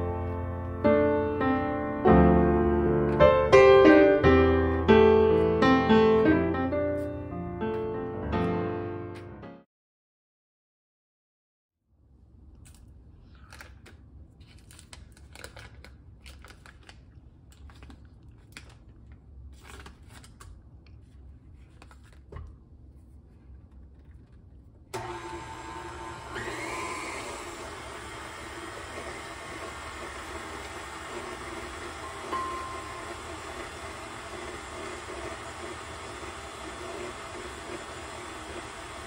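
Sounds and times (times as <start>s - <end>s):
stand mixer motor running: 25.0s - 39.0s.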